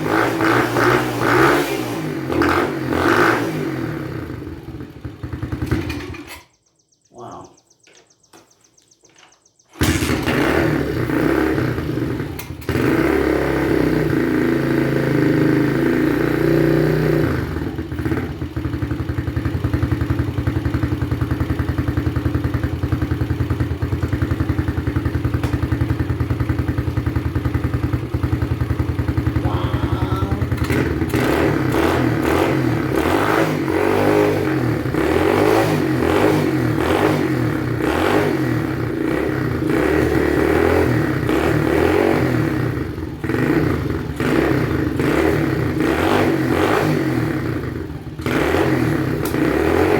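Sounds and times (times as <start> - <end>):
pit bike engine revving: 0.0 - 6.4, 9.7 - 49.9.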